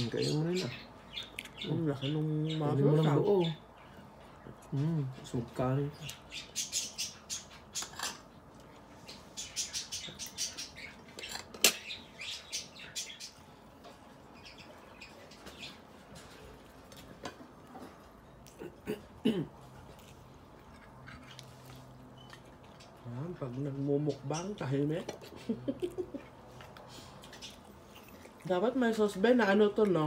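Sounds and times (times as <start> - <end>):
wet chewing and lip-smacks: 1.2 - 1.6, 19.8 - 23.0, 26.2 - 28.5.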